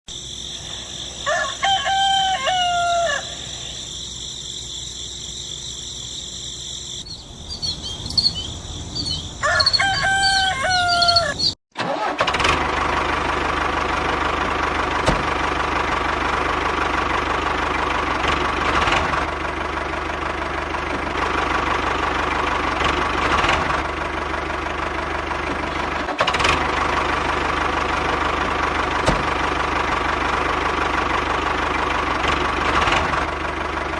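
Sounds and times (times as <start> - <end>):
rooster crowing: 1.0 - 3.9, 7.1 - 11.6.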